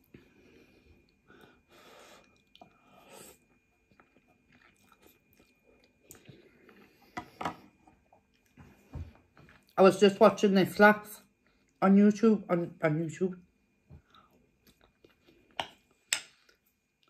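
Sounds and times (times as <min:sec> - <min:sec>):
person chewing noodles: 0:00.0 - 0:08.6, 0:14.0 - 0:17.0.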